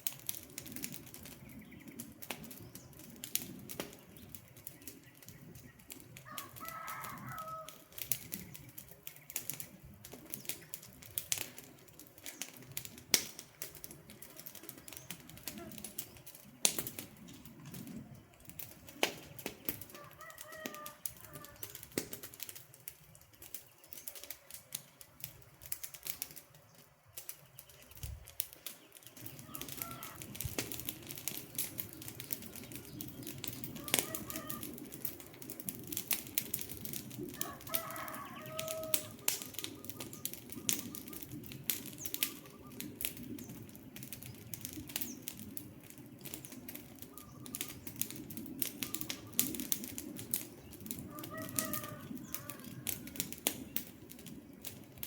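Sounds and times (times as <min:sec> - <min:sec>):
campfire crackling and popping: 0:00.0 - 0:55.0
bird calling: 0:28.8 - 0:30.4, 0:32.0 - 0:34.8, 0:37.4 - 0:41.4, 0:42.0 - 0:43.0, 0:47.0 - 0:48.0.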